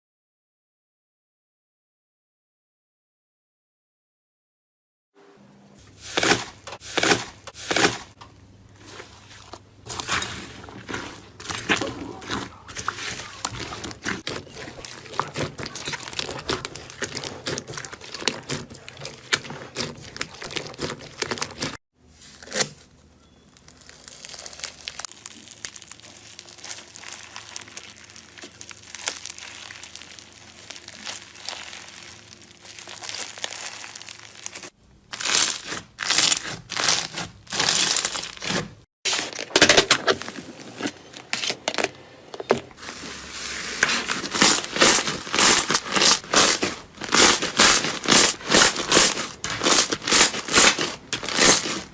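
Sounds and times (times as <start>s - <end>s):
slime crackling and crinkling: 5.9s - 42.0s, 42.7s - 51.9s.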